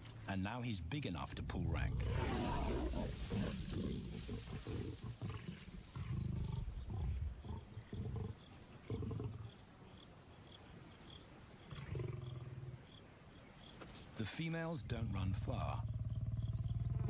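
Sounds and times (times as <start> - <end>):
lions snarling and growling: 1.3 - 9.6, 11.6 - 12.8, 15.8 - 17.0.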